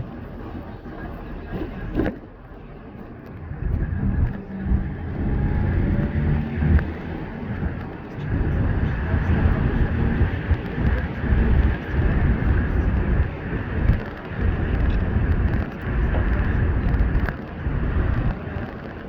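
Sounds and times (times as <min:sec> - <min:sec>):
minibus engine and road rumble: 0:00.0 - 0:19.0.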